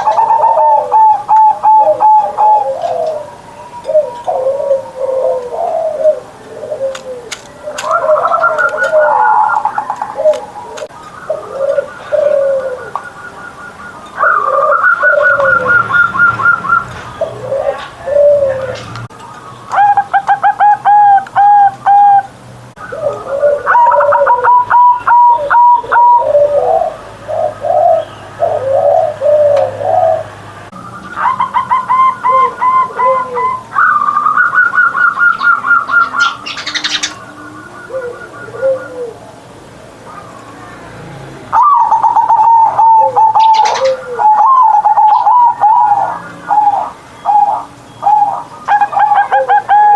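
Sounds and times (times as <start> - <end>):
doves cooing: 0.0 - 49.9.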